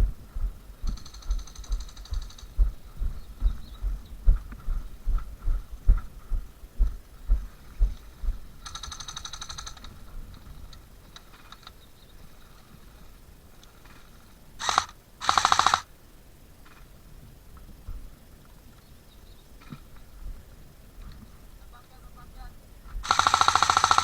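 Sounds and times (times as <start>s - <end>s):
airsoft gun full-auto bursts: 0.9s - 2.6s, 8.6s - 9.9s, 14.6s - 15.9s, 23.0s - 24.0s
footsteps thumping: 2.1s - 8.5s.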